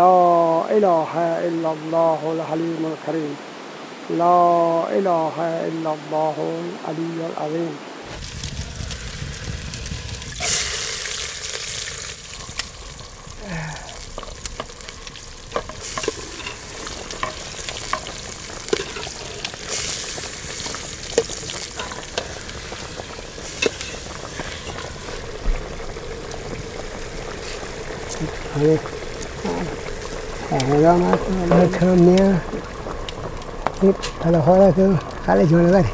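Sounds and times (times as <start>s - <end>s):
tomatoes sizzling in hot pot: 8.0s - 35.9s
wood fire crackling and popping: 8.0s - 35.9s.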